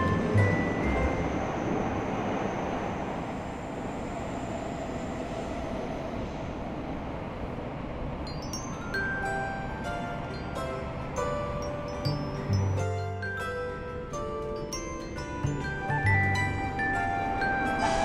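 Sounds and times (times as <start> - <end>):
chime-like music notes: 0.0 - 1.7, 8.3 - 18.0
cartoon train rushing: 15.8 - 18.0.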